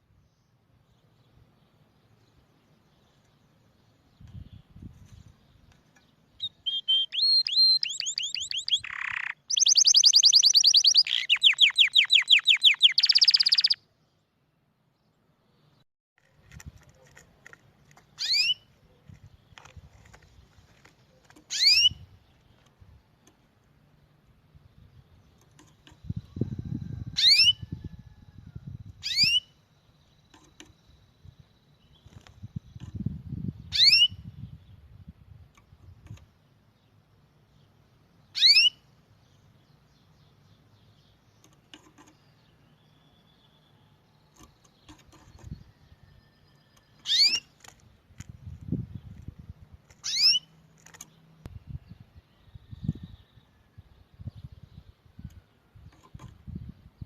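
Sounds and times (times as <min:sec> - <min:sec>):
canary singing: 0:05.4 - 0:13.9, 0:17.9 - 0:20.3, 0:20.9 - 0:23.4, 0:25.0 - 0:28.1, 0:28.9 - 0:34.3, 0:38.1 - 0:47.7, 0:49.9 - 0:51.3
bird rising calls: 0:06.4 - 0:13.8, 0:21.1 - 0:22.0, 0:45.4 - 0:47.5, 0:50.0 - 0:50.5.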